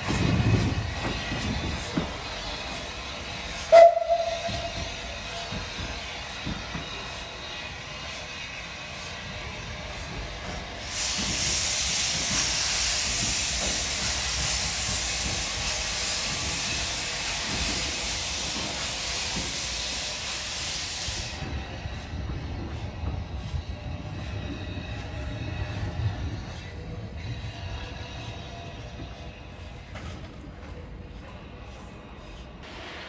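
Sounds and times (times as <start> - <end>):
steam locomotive hissing steam: 0.0 - 33.0.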